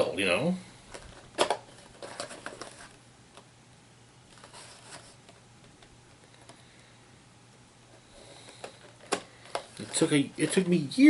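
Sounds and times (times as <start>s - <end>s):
packaging clicks and rustles: 0.9s - 3.0s.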